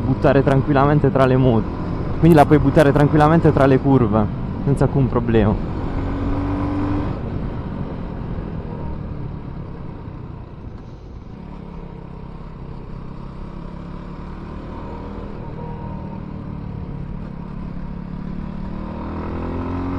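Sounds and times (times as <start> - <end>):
single-cylinder motorcycle engine running: 5.5 - 19.9.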